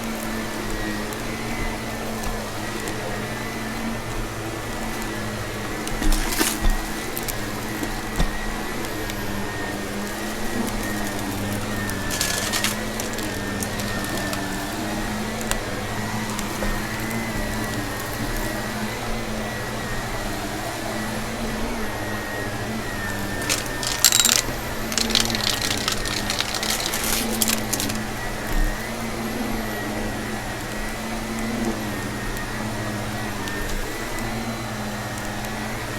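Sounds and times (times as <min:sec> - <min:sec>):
vacuum cleaner running: 0:00.0 - 0:35.9
debris crackling in vacuum: 0:10.3 - 0:14.8, 0:23.4 - 0:28.1.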